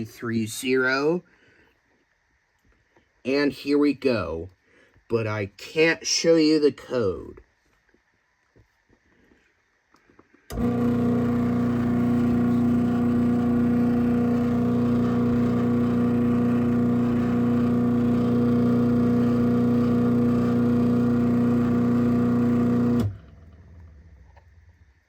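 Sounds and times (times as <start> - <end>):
garage door opener motor hum: 10.5 - 24.3.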